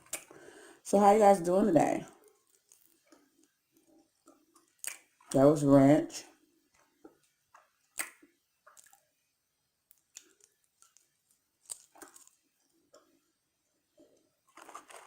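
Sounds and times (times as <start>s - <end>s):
open-mouth chewing: 6.7s - 9.1s, 9.9s - 13.2s.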